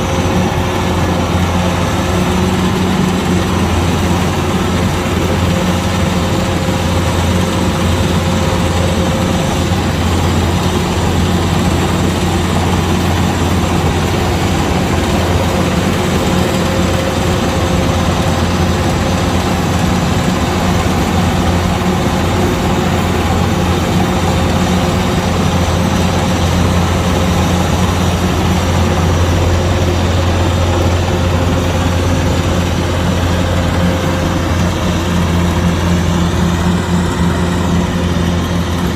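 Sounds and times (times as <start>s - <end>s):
combine harvester engine drone: 0.0s - 38.9s.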